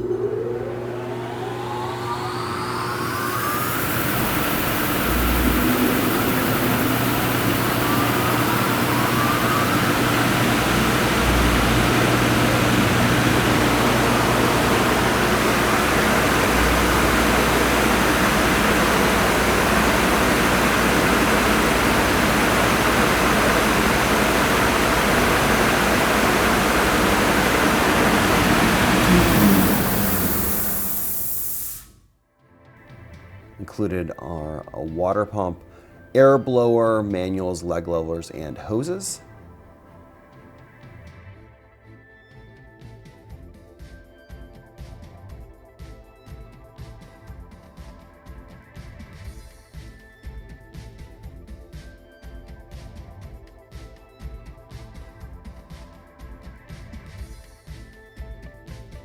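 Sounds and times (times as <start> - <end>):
steady mechanical rush: 0.0 - 31.8
motor winding down: 0.0 - 31.9
sander motors spinning up: 0.0 - 31.9.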